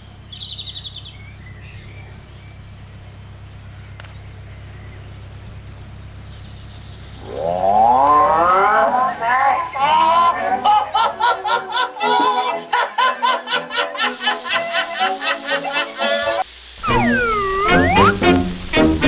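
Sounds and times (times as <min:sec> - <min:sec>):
birds trilling: 0:00.0 - 0:13.3
low hum: 0:01.2 - 0:11.0, 0:16.5 - 0:19.0
loud wavering multi-tone sound: 0:07.2 - 0:10.4, 0:16.8 - 0:18.8.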